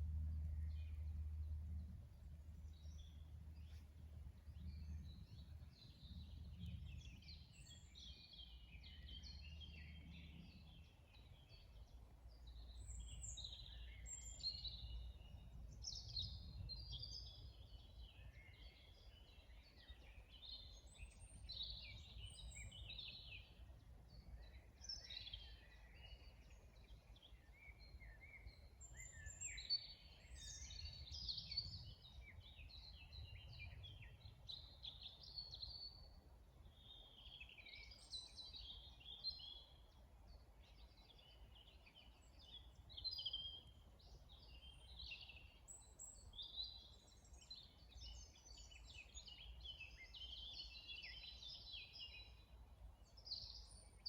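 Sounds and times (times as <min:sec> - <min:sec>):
faint low rumble: 0:00.0 - 0:18.1
songbirds singing and twittering: 0:00.0 - 0:54.0.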